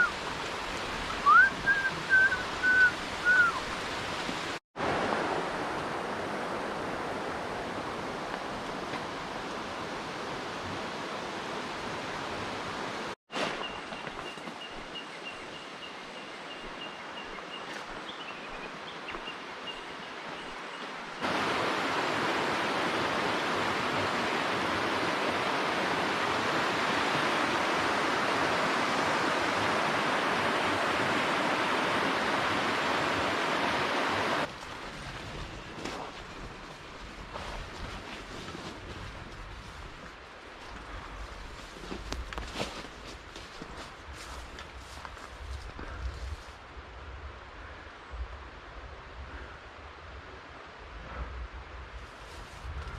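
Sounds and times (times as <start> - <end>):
stream rushing over rocks: 0.0 - 15.0, 17.3 - 35.4.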